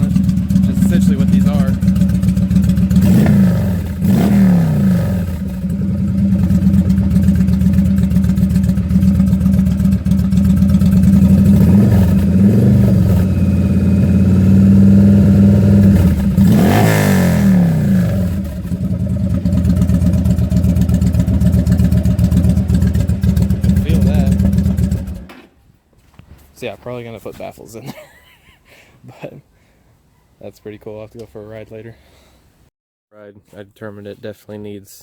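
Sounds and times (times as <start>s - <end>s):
motorcycle engine idling and revving: 0.0s - 25.5s.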